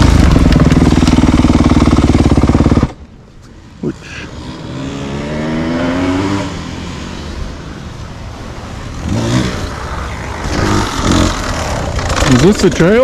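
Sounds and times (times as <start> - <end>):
dirt bike engine revving: 4.3 - 13.0.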